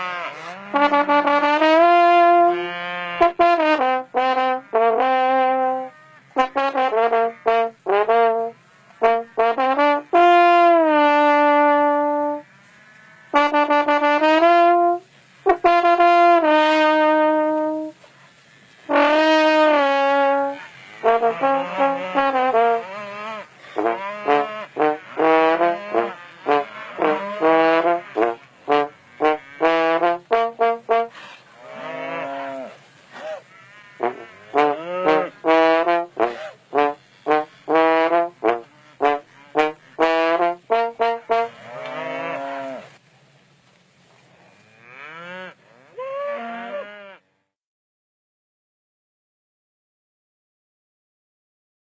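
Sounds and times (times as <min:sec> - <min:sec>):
person singing to call cows: 0:00.0 - 0:12.4, 0:18.9 - 0:31.1, 0:33.3 - 0:41.5.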